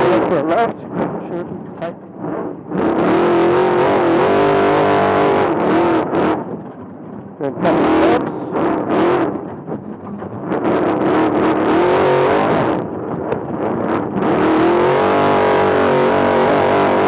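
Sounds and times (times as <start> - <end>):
truck engine revving: 0.0 - 17.0
sharp knocks: 9.4 - 10.7.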